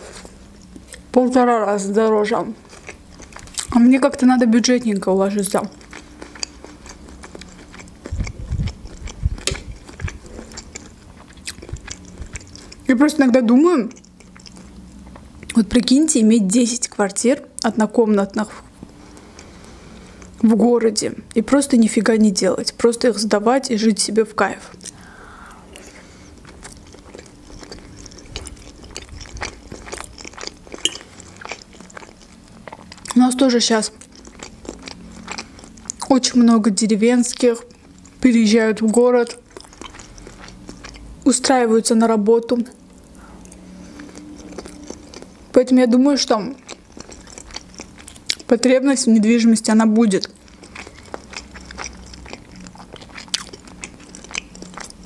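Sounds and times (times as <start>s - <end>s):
wet chewing mouth sounds: 5.5s - 12.9s, 13.8s - 15.6s, 25.7s - 33.2s, 33.9s - 36.4s, 39.2s - 41.2s, 42.8s - 45.4s, 46.4s - 48.6s, 50.0s - 55.0s.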